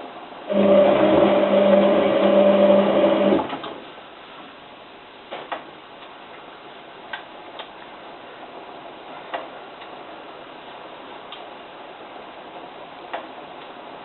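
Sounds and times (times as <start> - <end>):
washing machine drum motor humming: 0.4 - 4.0.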